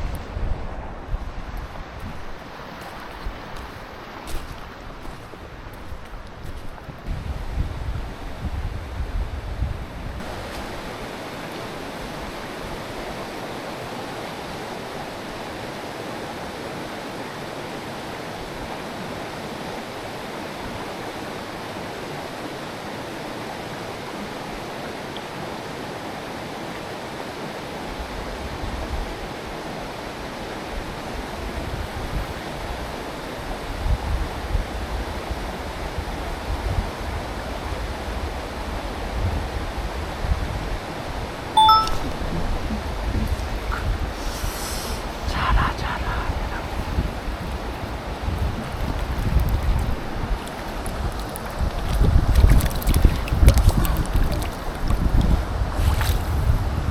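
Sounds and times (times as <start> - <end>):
stream rushing over rocks: 0.0 - 7.2, 10.2 - 33.8, 40.2 - 56.5
wind buffeting microphone: 0.0 - 10.8, 42.1 - 56.9.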